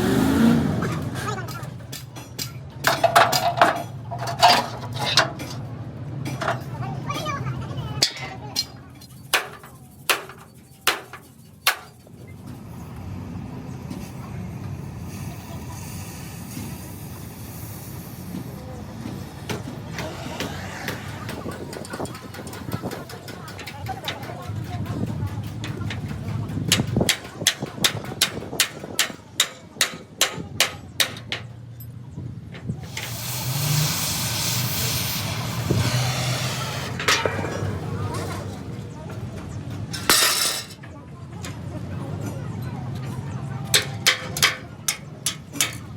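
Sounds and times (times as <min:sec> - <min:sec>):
hammer striking steel: 0:08.0 - 0:12.0, 0:25.6 - 0:31.5, 0:39.9 - 0:40.8, 0:43.7 - 0:45.9
loud hiss: 0:14.8 - 0:19.5, 0:32.8 - 0:37.2
steady mechanical drone: 0:32.0 - 0:40.8.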